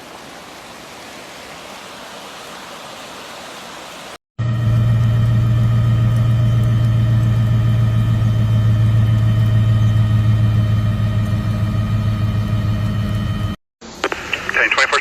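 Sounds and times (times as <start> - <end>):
vehicle engine humming: 4.4 - 14.6.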